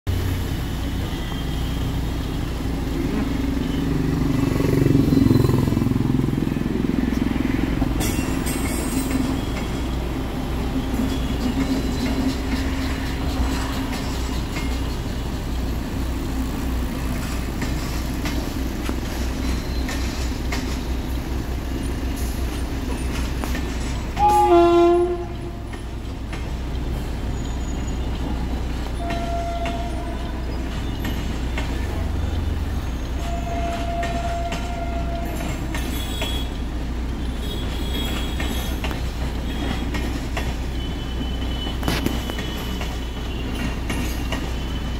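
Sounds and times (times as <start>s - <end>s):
train wheels clattering on track: 0.1s - 44.9s
train horn blast: 24.2s - 25.7s, 29.0s - 30.4s, 33.2s - 36.6s.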